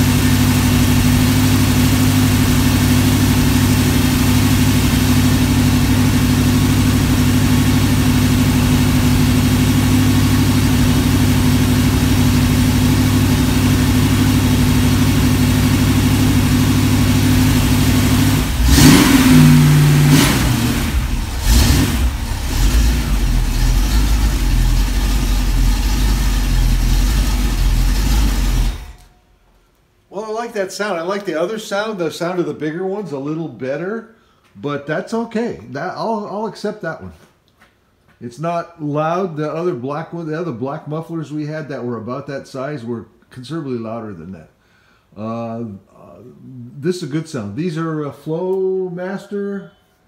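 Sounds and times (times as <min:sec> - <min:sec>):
engine idling and revving: 0:00.0 - 0:29.1.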